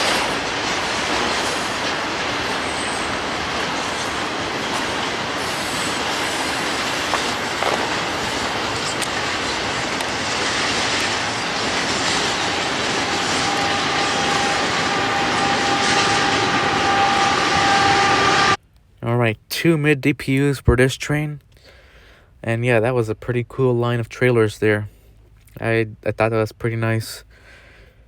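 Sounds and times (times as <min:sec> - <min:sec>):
high wheel squeal: 0:00.0 - 0:18.6
train wheels rolling on rail: 0:00.0 - 0:18.6
rail joint clicks: 0:00.0 - 0:19.1.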